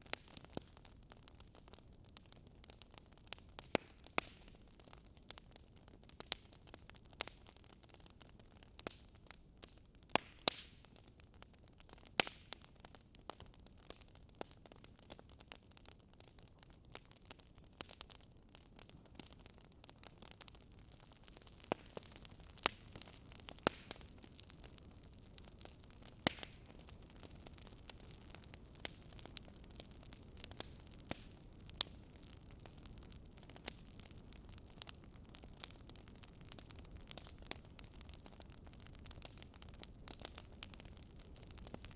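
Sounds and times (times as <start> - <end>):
fire crackling and popping: 0.0 - 41.9
soft steady hiss: 0.0 - 41.9.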